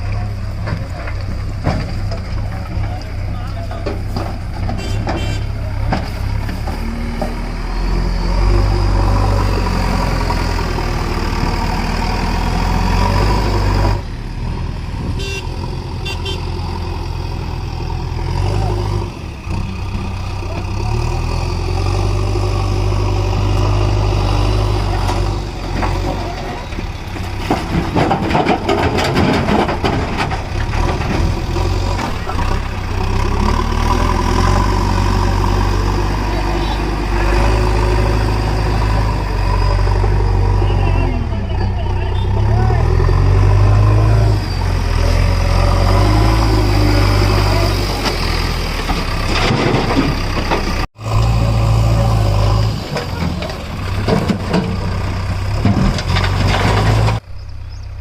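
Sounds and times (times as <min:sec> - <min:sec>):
diesel engine running: 0:00.0 - 0:58.0
clattering and knocking: 0:00.6 - 0:03.0, 0:24.9 - 0:32.6, 0:48.0 - 0:50.9, 0:52.9 - 0:57.2.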